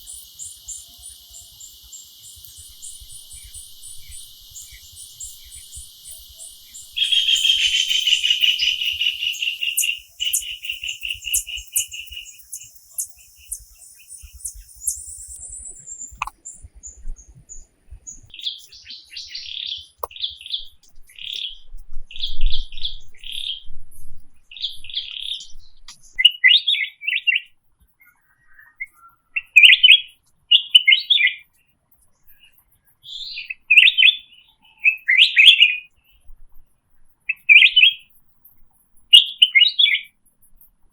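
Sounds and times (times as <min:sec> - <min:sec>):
buzzing pulsing bird trill: 0:00.0 - 0:16.2
bird chirping phrases: 0:00.0 - 0:23.7, 0:24.5 - 0:36.3, 0:37.3 - 0:38.1, 0:39.1 - 0:40.2.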